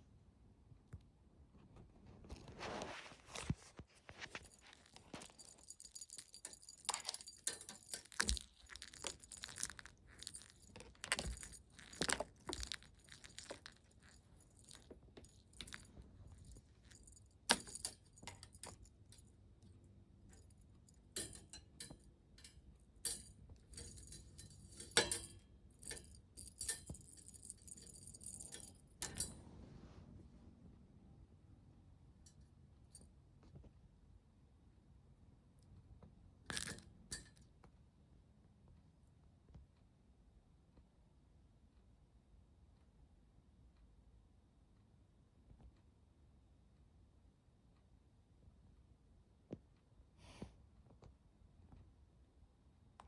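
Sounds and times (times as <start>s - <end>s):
cat toy clinking and rattling: 4.1s - 29.5s, 36.5s - 37.5s.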